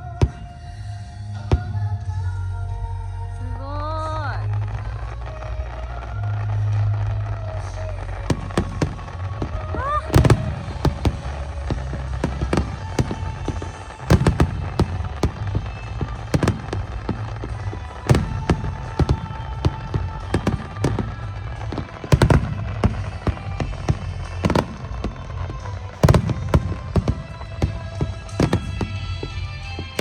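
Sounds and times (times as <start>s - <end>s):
heavy fireworks booms: 0.0s - 2.8s, 4.4s - 30.0s
fireworks bangs and crackles: 0.0s - 30.0s
music with steady low bass: 0.0s - 30.0s.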